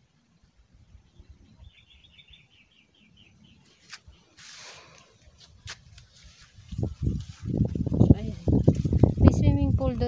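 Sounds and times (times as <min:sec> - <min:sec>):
small bird chirping: 0:01.0 - 0:04.4.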